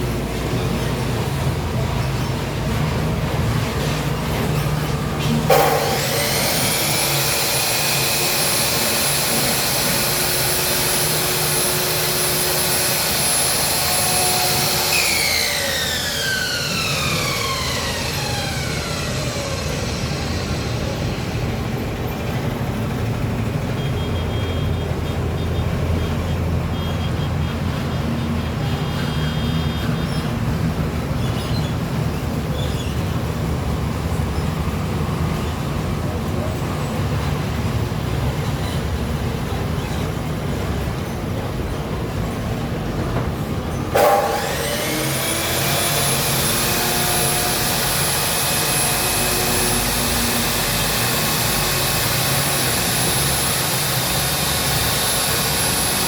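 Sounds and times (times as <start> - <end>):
steady background noise: 0.0 - 56.0
mitre saw motor whining: 5.5 - 21.8, 43.9 - 56.0.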